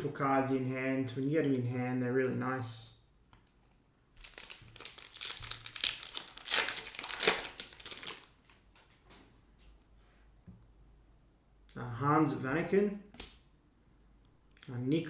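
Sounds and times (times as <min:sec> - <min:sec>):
foil wrapper crinkling and tearing: 0:04.2 - 0:08.8.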